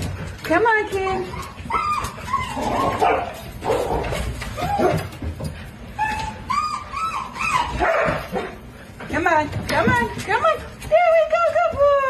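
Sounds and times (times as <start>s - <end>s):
dog whining and whimpering: 1.2s - 3.4s, 4.4s - 5.2s, 5.9s - 8.2s.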